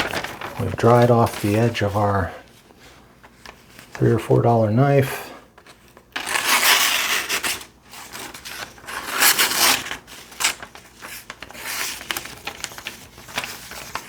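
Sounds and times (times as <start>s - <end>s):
knife slicing paper: 6.2s - 10.7s.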